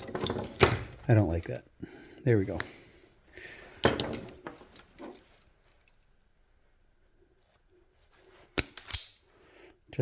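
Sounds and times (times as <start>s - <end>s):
tools clattering on a workbench: 0.0s - 1.0s, 3.8s - 5.9s.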